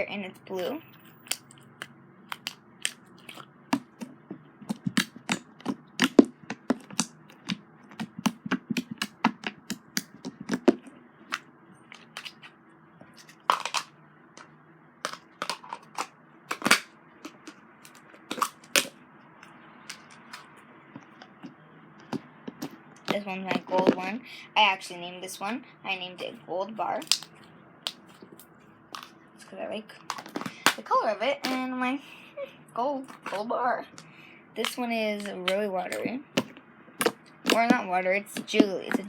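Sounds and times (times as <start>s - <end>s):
slime squishing and popping: 1.2s - 11.4s, 16.5s - 19.0s, 27.0s - 27.3s.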